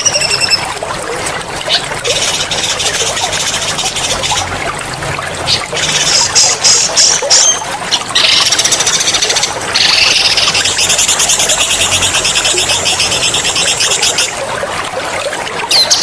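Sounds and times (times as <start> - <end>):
trickling water: 0.0 - 16.0
songbird trilling: 1.7 - 4.5, 5.5 - 14.3.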